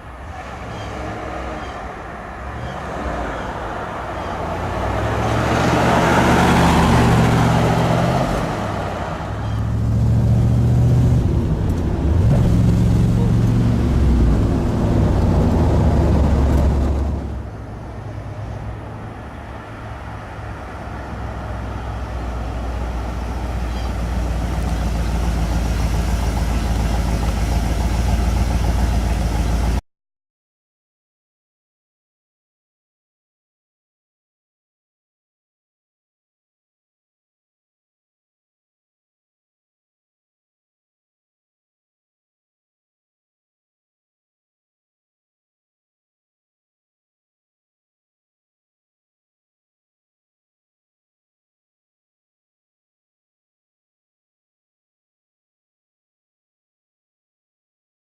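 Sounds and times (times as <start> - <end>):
car engine revving through gears: 2.5 - 17.4.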